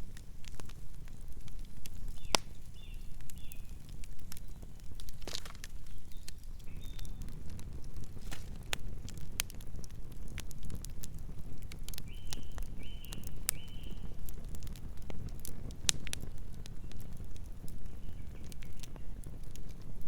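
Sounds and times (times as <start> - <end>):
campfire crackling and popping: 0.0 - 20.0
fire rumbling: 0.0 - 20.0.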